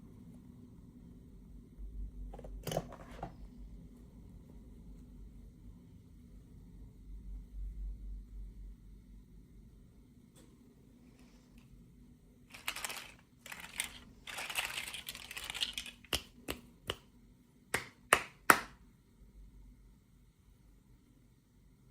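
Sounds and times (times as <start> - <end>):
plastic packaging crinkling: 12.5 - 16.2.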